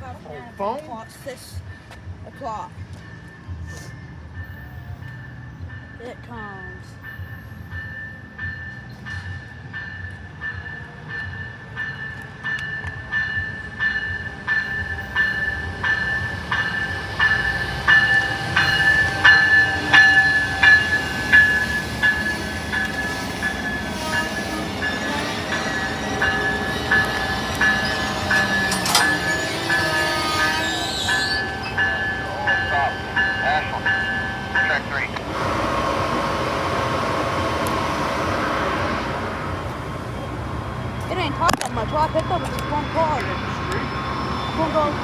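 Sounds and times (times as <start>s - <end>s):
passenger train rumble: 0.0s - 45.0s
bell ringing: 4.4s - 35.0s.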